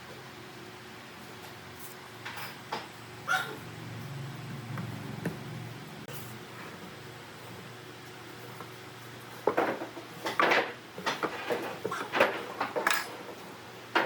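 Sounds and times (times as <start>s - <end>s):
hard objects clattering: 9.4s - 14.0s.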